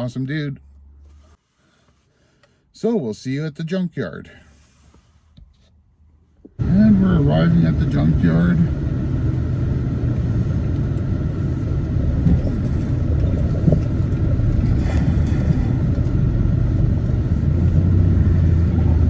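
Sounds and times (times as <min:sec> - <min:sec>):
road noise: 0:00.0 - 0:19.0
vehicle engine drone: 0:06.0 - 0:19.0.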